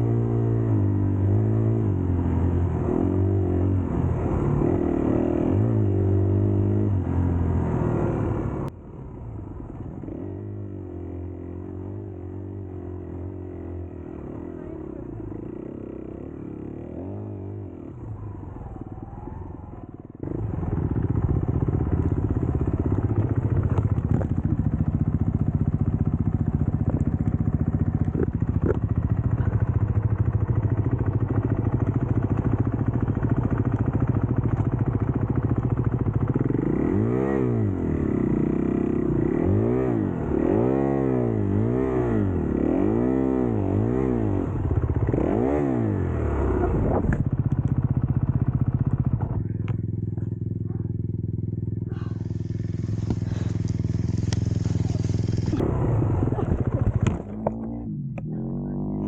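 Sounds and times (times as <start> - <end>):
dirt bike engine revving: 36.2 - 47.2, 51.8 - 59.0.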